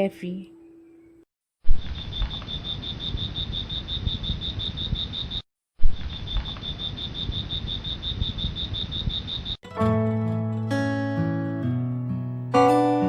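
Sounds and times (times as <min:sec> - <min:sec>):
insect calling in pulses: 0:01.7 - 0:09.6.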